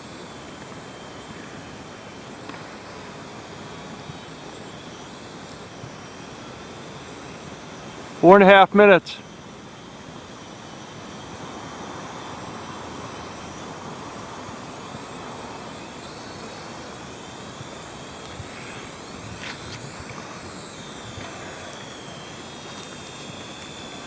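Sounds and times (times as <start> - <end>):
drone flying: 10.1 - 24.0.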